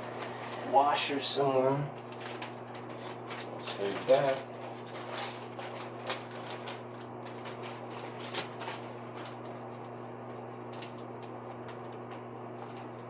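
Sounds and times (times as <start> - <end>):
steady low hum: 0.0 - 13.0
small items clicking and rustling: 2.1 - 9.4.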